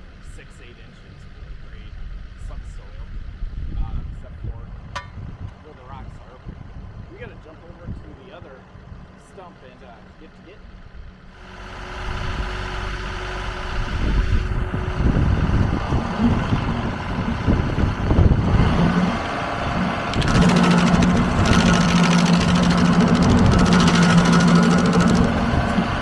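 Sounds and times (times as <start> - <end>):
tractor diesel engine running: 0.0 - 26.0
stump grinder high-pitched chatter: 20.0 - 26.0.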